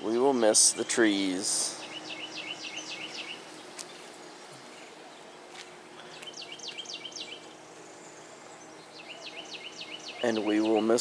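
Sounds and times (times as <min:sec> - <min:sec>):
faint outdoor background noise: 0:00.0 - 0:11.0
songbird singing: 0:00.0 - 0:11.0.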